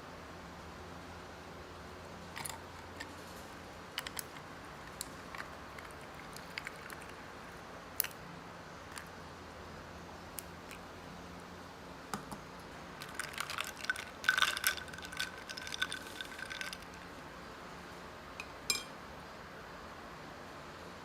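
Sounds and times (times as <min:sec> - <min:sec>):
glassware and dishes clinking: 0:18.4 - 0:18.9.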